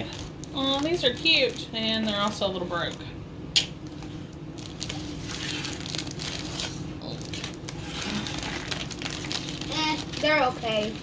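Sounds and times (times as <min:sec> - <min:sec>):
sharp snap: 0:03.5 - 0:03.8
snack wrapper crinkling: 0:03.8 - 0:11.0.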